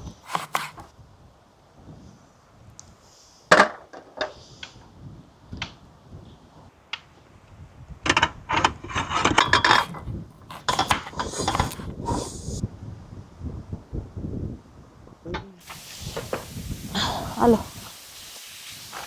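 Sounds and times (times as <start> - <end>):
cooking utensils and pots clattering: 8.9 - 11.8.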